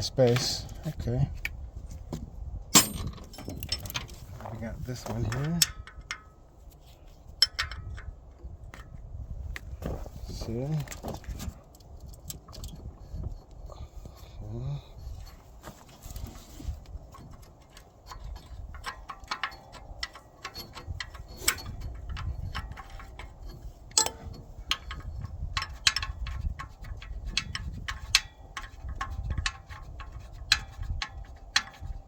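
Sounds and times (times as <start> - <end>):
wrench clicking on bolt: 17.7 - 31.9.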